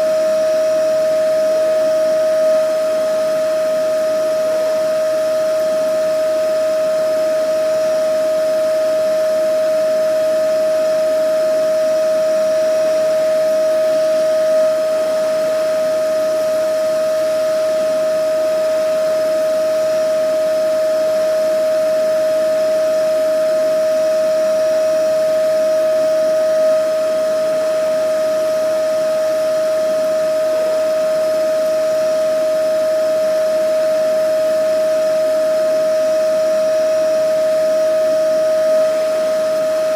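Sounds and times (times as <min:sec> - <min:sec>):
vacuum cleaner running: 0:10.5 - 0:39.9.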